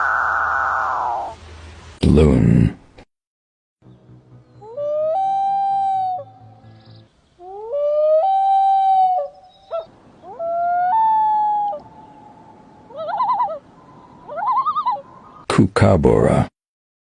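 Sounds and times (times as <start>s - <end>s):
loon wailing: 0.0s - 1.4s, 4.6s - 15.4s
loon tremolo call: 4.4s - 15.0s.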